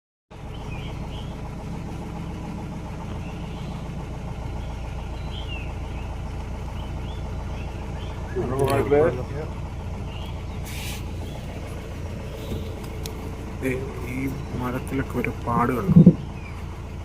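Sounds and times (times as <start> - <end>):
vehicle engine idling: 0.3 - 17.0
high bird chirps: 0.4 - 1.4, 3.1 - 8.4, 10.0 - 13.4, 16.0 - 16.8.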